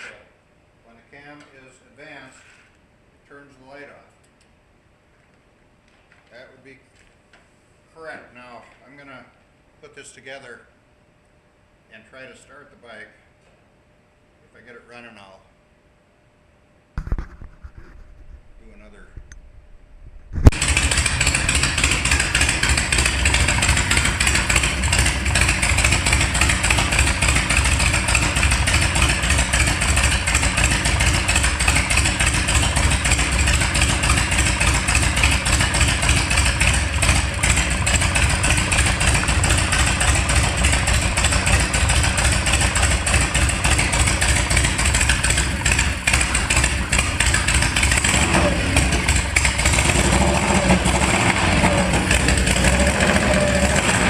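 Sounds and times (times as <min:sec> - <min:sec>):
motorcycle engine fast idle: 0:20.5 - 0:54.0.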